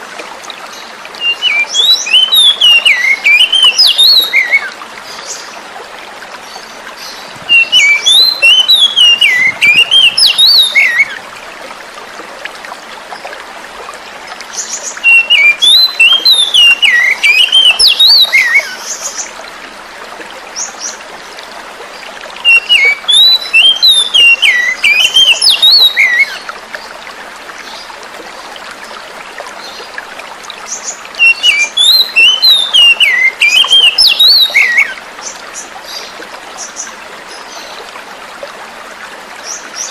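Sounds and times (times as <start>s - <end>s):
running water: 0.0s - 39.9s
songbird whistled phrases: 7.5s - 11.2s, 15.0s - 18.8s, 22.4s - 26.4s, 31.2s - 35.0s.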